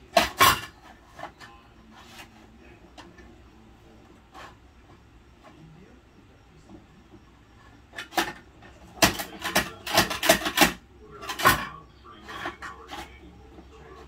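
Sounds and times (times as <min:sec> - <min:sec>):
hard plastic toy knocking: 0:07.9 - 0:13.6.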